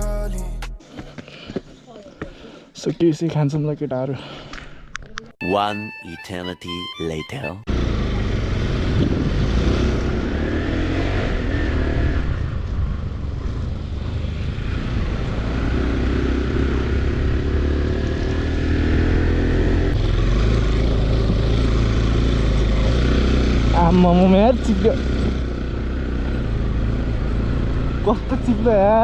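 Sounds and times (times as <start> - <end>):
motorcycle engine revving: 7.7 - 29.0.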